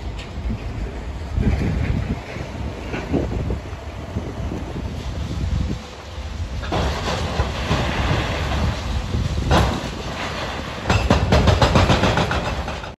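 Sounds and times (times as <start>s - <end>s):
demolition machinery engine rumble: 0.0s - 13.0s
masonry crunching and clattering: 6.6s - 13.0s.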